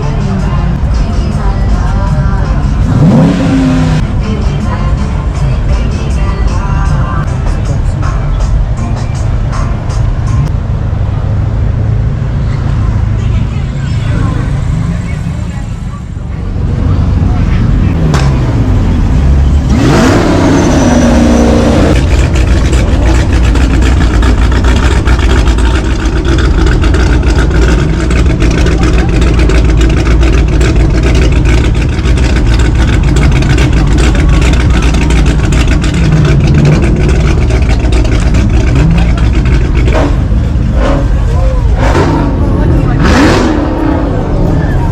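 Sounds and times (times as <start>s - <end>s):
car engine revving hard: 2.8s - 4.0s, 19.6s - 44.5s.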